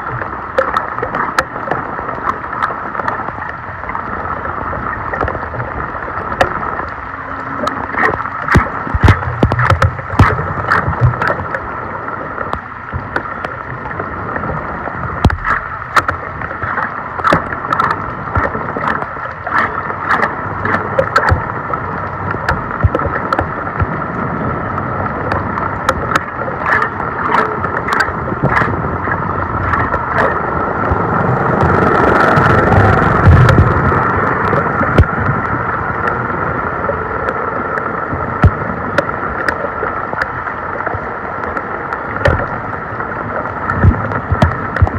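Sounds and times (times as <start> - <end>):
sharp clicks and knocks: 7.6 - 11.6, 15.2 - 21.6, 22.3 - 24.0, 25.3 - 30.4, 42.2 - 42.6, 43.7 - 44.9
water rushing into storm drain: 14.2 - 40.8.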